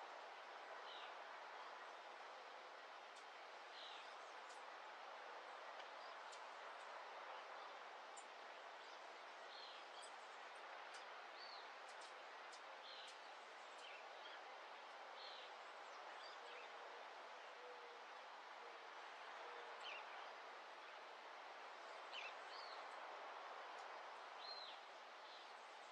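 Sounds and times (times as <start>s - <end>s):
background hiss: 0.0s - 25.9s.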